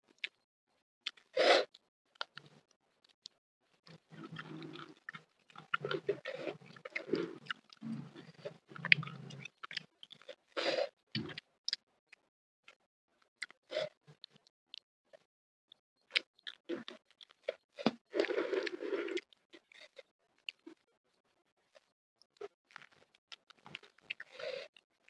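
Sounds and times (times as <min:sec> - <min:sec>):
chewing and crunching food: 0:00.0 - 0:25.0
wet mouth sounds: 0:03.9 - 0:09.9.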